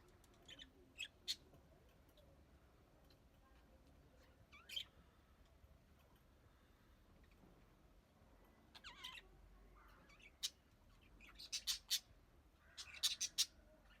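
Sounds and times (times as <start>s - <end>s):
budgerigar chirps and squawks: 0.5s - 1.4s, 8.7s - 9.3s, 10.0s - 14.0s.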